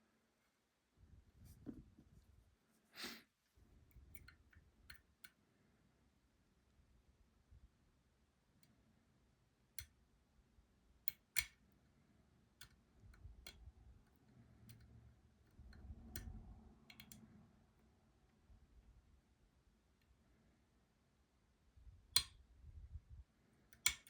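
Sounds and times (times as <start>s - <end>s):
metallic lock pick clicks: 4.0s - 5.3s, 11.0s - 11.6s, 14.5s - 17.4s, 22.1s - 22.4s, 23.7s - 24.0s.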